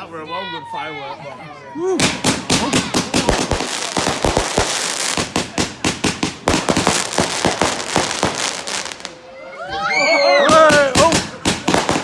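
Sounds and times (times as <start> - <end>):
fireworks crackling: 2.0 - 9.3, 10.5 - 12.0.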